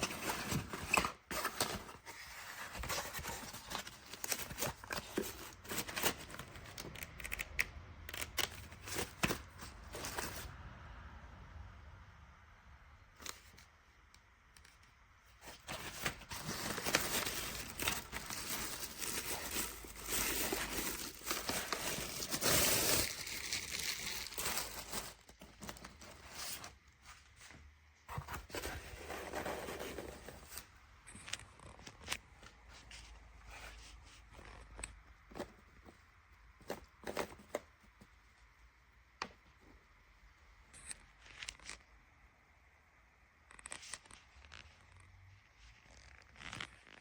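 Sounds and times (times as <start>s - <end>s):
small clicks and handling noises: 2.6s - 9.4s, 13.2s - 22.0s, 31.0s - 33.2s, 34.2s - 38.1s, 40.6s - 42.2s, 43.2s - 47.0s
packaging being torn and crinkled: 15.8s - 26.3s.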